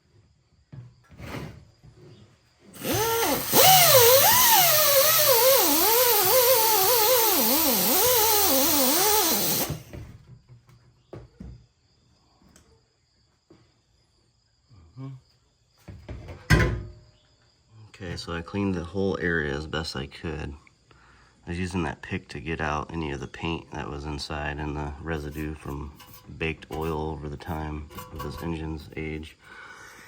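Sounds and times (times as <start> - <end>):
rotary tool sanding metal: 2.8 - 9.8.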